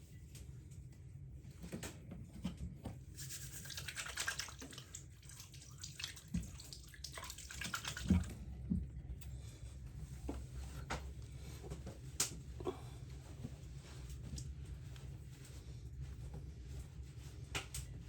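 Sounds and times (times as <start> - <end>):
water running: 3.2 - 8.8.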